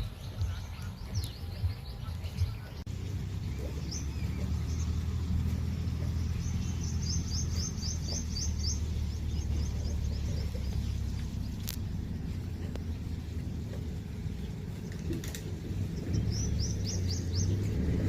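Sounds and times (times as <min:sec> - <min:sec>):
small bird chirping: 0:00.0 - 0:17.8
low rumble: 0:00.0 - 0:18.0.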